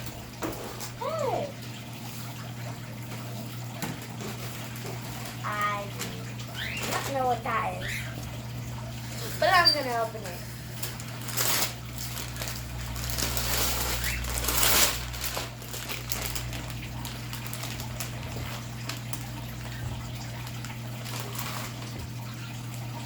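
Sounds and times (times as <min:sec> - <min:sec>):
paper rustling: 0:04.0 - 0:07.7, 0:10.8 - 0:22.4
wrapping paper tearing: 0:10.8 - 0:22.3.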